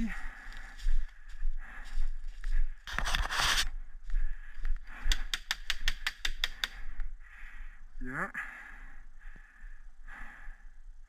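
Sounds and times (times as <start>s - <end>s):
brush rustling: 2.8s - 3.8s.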